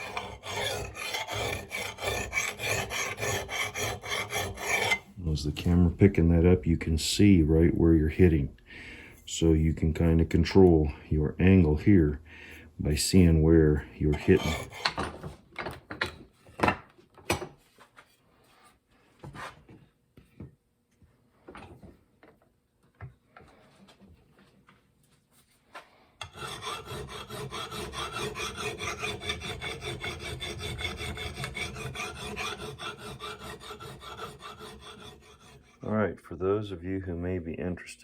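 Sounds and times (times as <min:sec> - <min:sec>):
file rasping on axe blade: 0:00.0 - 0:05.1, 0:14.1 - 0:15.0, 0:26.2 - 0:35.9.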